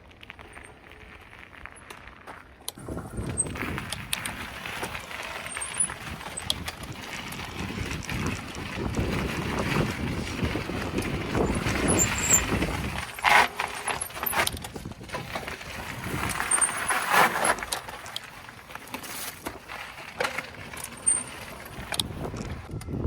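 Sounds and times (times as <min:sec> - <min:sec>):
bicycle road noise: 0:00.0 - 0:23.0
rushing wind: 0:02.8 - 0:17.7, 0:20.5 - 0:23.0.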